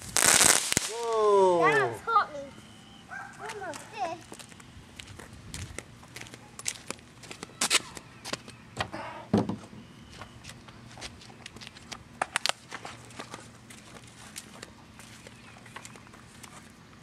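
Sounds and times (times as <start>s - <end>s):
small fireworks cracking: 0.0s - 2.0s, 11.5s - 14.7s.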